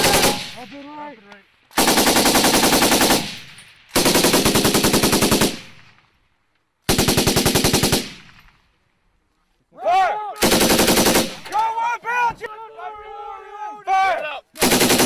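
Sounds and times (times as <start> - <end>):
machine gun bursts: 0.0 - 0.6, 10.4 - 11.4, 14.6 - 15.0.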